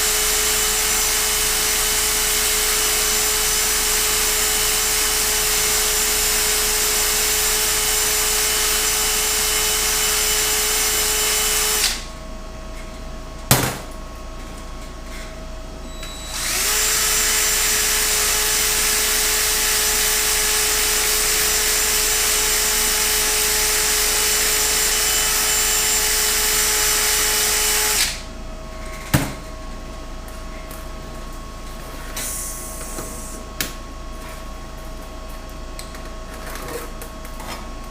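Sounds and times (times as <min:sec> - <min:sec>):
handheld power tool whining: 0:00.0 - 0:12.1, 0:16.0 - 0:28.2.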